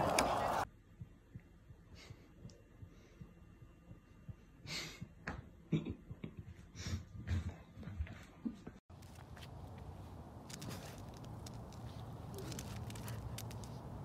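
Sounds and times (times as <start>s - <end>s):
soft breaths and sighs: 1.7s - 5.2s.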